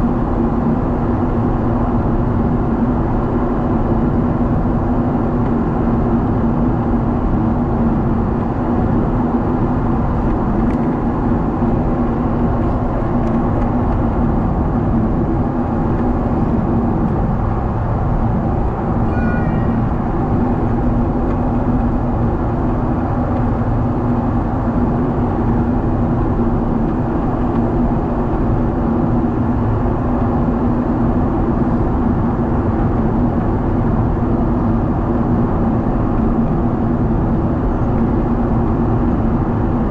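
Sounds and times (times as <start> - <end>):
jet engine drone: 0.0 - 39.9
brief high-pitched sound: 19.1 - 20.0.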